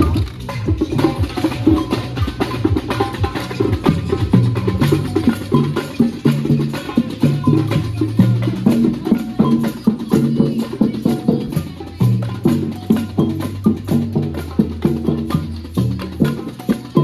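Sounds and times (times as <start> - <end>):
repeated bass notes: 0.0 - 9.2
music with steady beat: 0.0 - 17.0.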